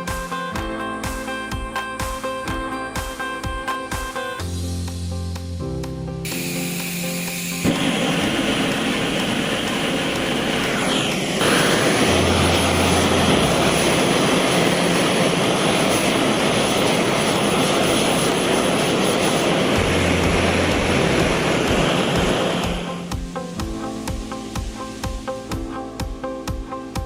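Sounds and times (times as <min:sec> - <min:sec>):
gas torch flame roaring: 0:06.3 - 0:23.1.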